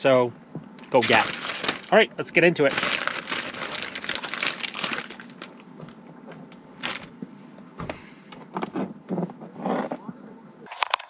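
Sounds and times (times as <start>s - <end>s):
crinkly packaging rustling: 0.8s - 7.1s.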